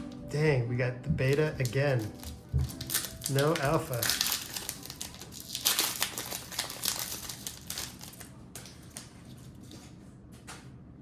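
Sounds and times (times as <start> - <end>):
plastic wrapper crinkling: 1.3 - 9.7.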